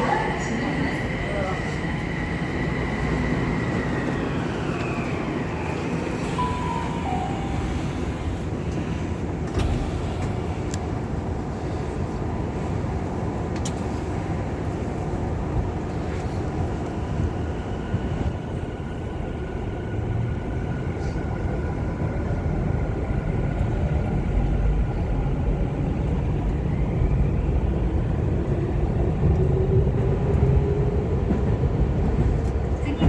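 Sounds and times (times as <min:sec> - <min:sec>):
electric train rumble: 0:00.0 - 0:33.0
high whine: 0:06.4 - 0:08.4.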